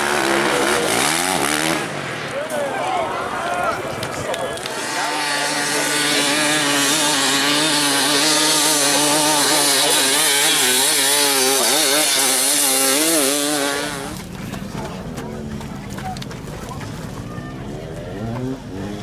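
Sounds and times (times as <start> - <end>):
small two-stroke engine revving: 0.0 - 2.3, 4.5 - 14.4, 17.6 - 19.0.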